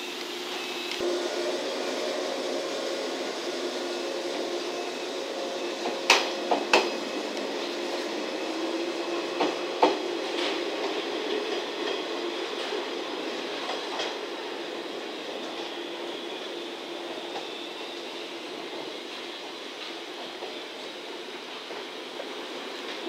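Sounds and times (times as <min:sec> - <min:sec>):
electric train running hum: 0:00.0 - 0:23.0
wheels clacking over rail joints: 0:02.5 - 0:15.8.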